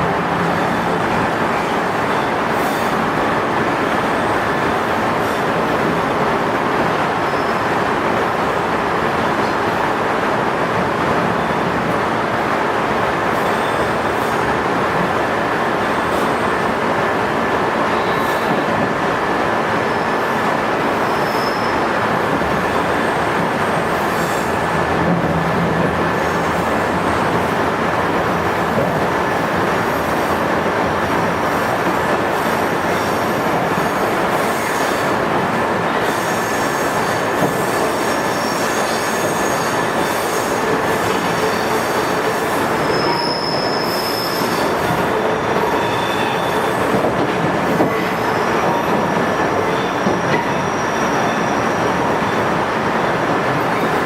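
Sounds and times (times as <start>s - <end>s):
high squealing wheels: 7.1s - 7.8s, 19.8s - 24.9s, 29.3s - 53.1s.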